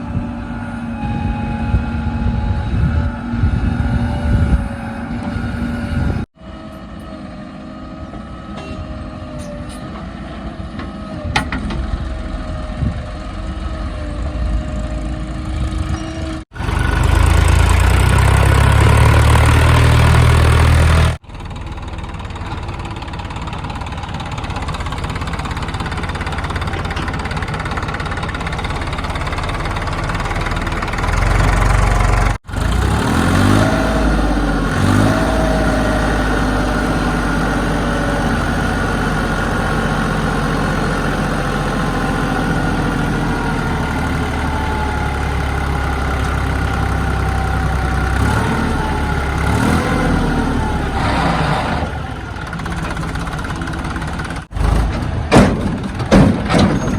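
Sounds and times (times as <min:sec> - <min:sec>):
heavy machinery diesel engines: 0:00.0 - 0:56.9
engine revving: 0:13.5 - 0:21.2, 0:30.1 - 0:55.1.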